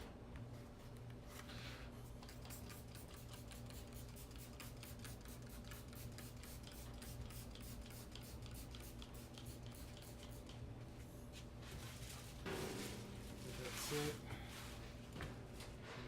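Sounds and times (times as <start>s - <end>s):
steady low hum: 0.0s - 16.0s
spray bottle squirting: 2.2s - 10.5s.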